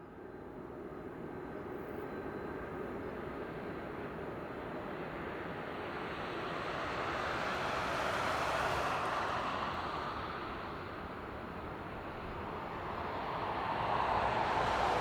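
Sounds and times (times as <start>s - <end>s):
jet airliner passing: 5.0s - 15.0s.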